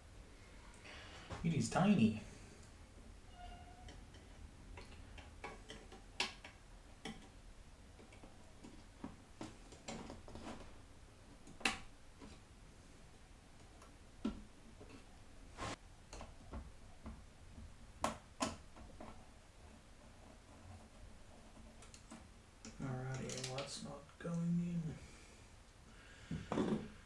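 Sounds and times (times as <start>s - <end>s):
small clicks handling computer parts: 21.7s - 23.7s.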